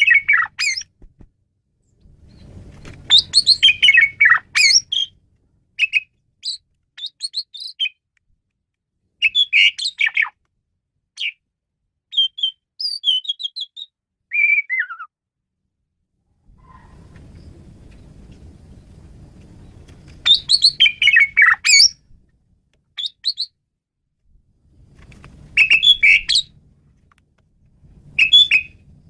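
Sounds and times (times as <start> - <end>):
starling singing: 0.0 - 0.9, 3.1 - 5.2, 5.8 - 8.0, 9.2 - 10.4, 20.2 - 22.0, 25.6 - 26.5, 28.2 - 28.8.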